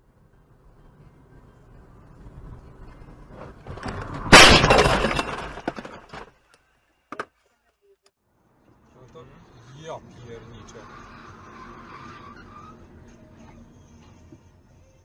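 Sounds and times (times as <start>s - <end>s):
loud car collision impact: 3.6s - 6.3s
breaking and clattering debris: 3.6s - 6.4s.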